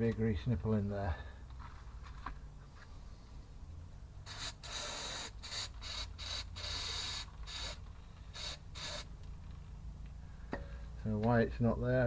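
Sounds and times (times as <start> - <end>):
hissing spray bursts: 4.2 - 9.1.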